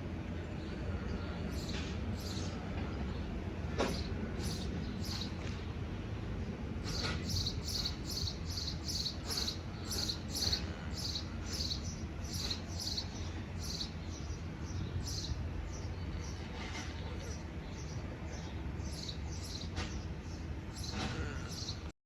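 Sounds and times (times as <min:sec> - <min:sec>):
low steady rumble: 0:00.0 - 0:21.9
small bird chirping: 0:00.6 - 0:05.7, 0:06.8 - 0:16.5, 0:17.2 - 0:21.9.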